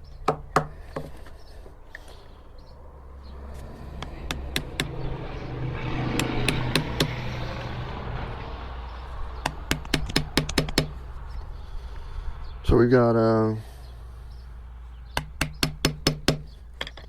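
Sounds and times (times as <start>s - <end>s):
low mechanical hum: 0.0s - 12.7s
hammer knocking on log: 4.0s - 5.0s, 9.4s - 11.0s, 15.2s - 17.0s.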